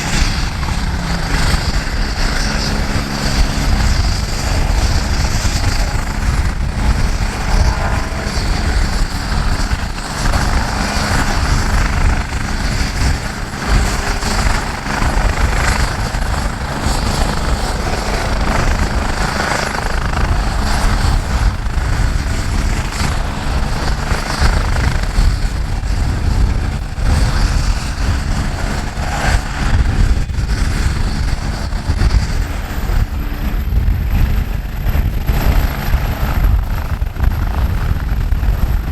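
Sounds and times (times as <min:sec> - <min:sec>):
helicopter running: 0:00.0 - 0:38.9.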